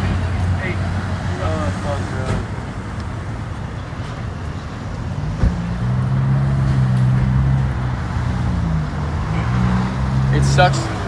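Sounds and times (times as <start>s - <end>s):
background traffic: 0.0s - 11.0s
vehicle engine humming: 0.0s - 11.0s.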